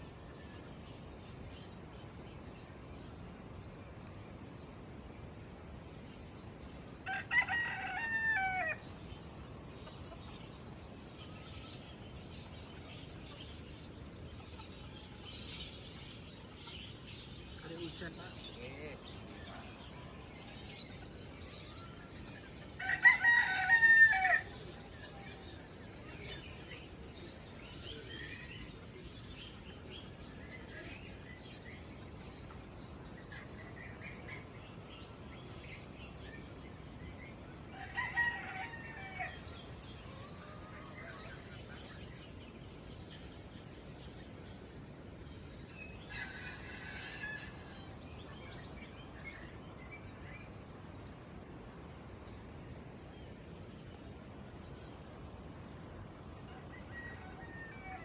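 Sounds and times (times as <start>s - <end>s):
small birds twittering: 0.0s - 58.0s
rooster crowing: 7.0s - 8.8s, 22.8s - 24.6s, 37.7s - 39.5s, 46.1s - 48.0s, 56.5s - 58.0s.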